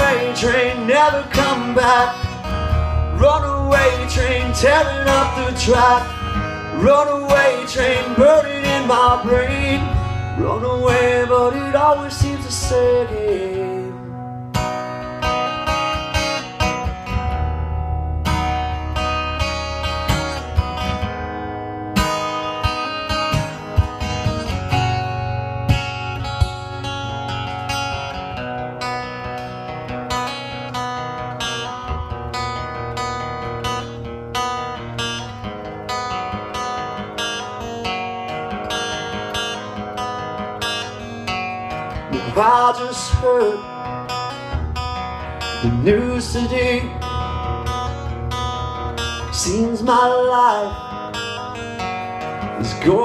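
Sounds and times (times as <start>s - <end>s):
low bass line: 0.0s - 14.6s, 15.2s - 21.8s, 23.6s - 29.3s, 44.5s - 50.0s
acoustic guitar chords: 0.0s - 53.0s.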